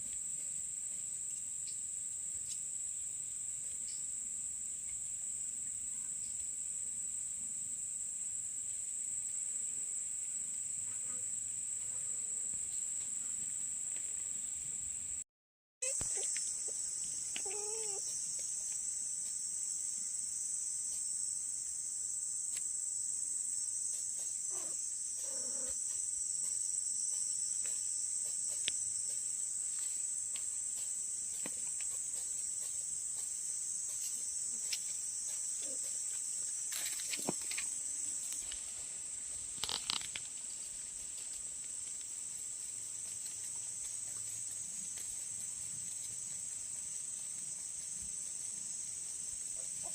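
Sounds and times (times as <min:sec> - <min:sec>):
insect chirring: 0:00.6 - 0:05.6, 0:15.8 - 0:49.9.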